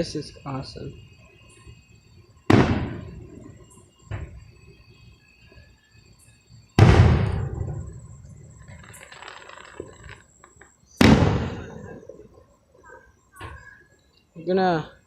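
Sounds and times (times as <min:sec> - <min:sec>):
firework crackling: 0:00.0 - 0:04.8, 0:05.4 - 0:12.4
firework bangs with rumble: 0:02.5 - 0:04.5, 0:06.8 - 0:08.0, 0:11.0 - 0:12.1.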